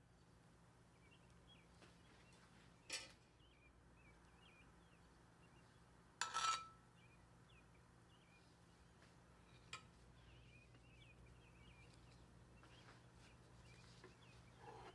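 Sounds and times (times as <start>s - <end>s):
low steady hum: 0.0s - 14.9s
kitchen utensil clinking: 6.2s - 6.8s
faint bird chirps: 6.9s - 14.9s.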